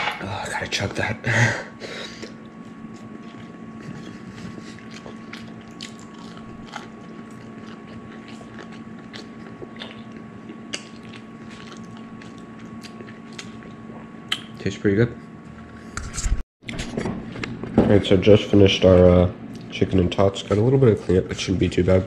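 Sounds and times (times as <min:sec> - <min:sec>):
steady low hum: 0:00.0 - 0:22.0
person chewing crunchy food: 0:02.2 - 0:14.4.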